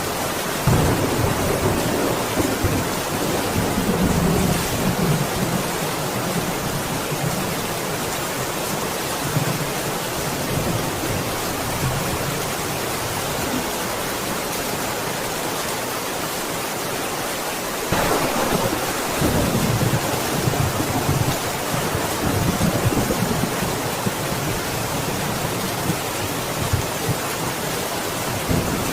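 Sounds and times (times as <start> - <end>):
heavy rain: 0.0 - 28.9
low rolling thunder: 0.6 - 7.6, 17.9 - 27.6.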